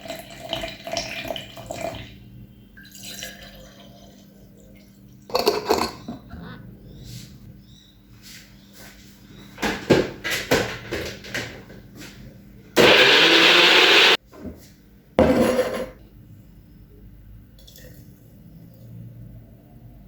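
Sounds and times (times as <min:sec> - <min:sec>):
knocks and clatters of handling: 0:09.6 - 0:12.2
blender pulsing: 0:12.8 - 0:14.2.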